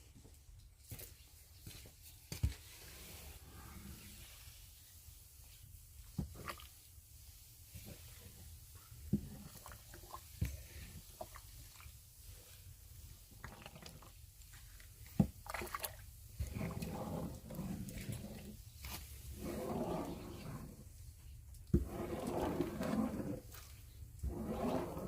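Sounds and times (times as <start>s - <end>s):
wet squishing of sticky rice: 4.2s - 20.2s.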